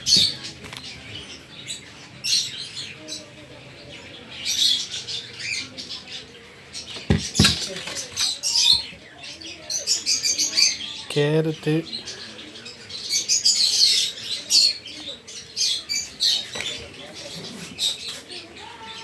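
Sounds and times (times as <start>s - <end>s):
lovebirds chirping: 0.0s - 19.0s
sharp knocks: 7.0s - 7.7s.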